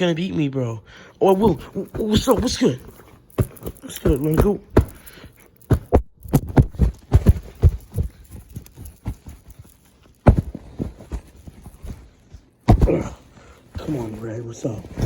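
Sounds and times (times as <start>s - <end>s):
thumps and knocks of fighting: 1.4s - 9.5s, 10.2s - 12.0s, 12.6s - 13.9s.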